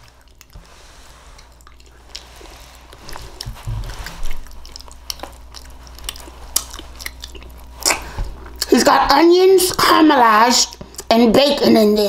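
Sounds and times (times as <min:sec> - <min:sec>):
person chewing with wet clicks: 0:00.0 - 0:08.8, 0:10.6 - 0:11.2.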